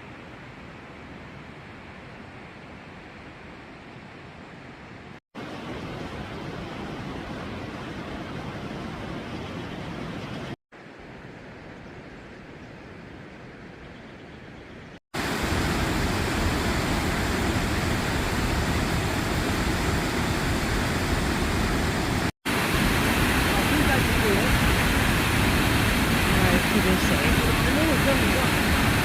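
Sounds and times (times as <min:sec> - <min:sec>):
waterfall rushing: 0:15.2 - 0:29.0.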